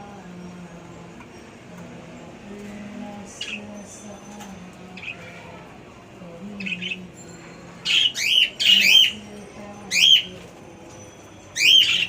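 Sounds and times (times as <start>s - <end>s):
pet birds calling shrilly: 7.8s - 9.2s, 9.9s - 10.4s, 11.5s - 12.0s.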